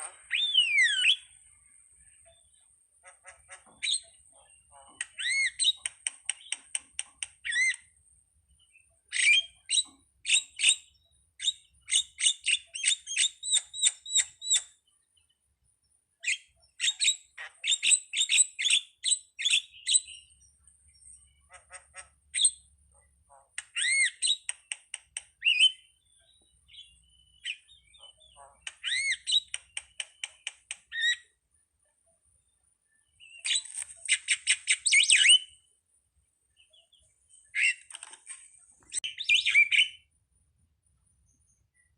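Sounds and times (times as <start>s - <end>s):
starling chattering and whistling: 0.0s - 1.4s, 3.2s - 7.8s, 23.6s - 25.9s, 26.7s - 31.3s, 33.2s - 35.6s, 38.9s - 40.0s.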